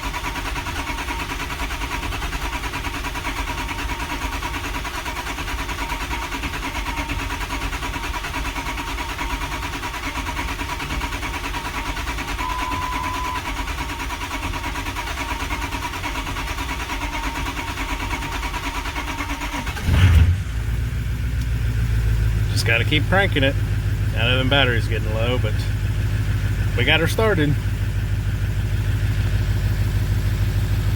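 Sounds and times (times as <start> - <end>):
starter motor cranking: 0.0 - 21.8.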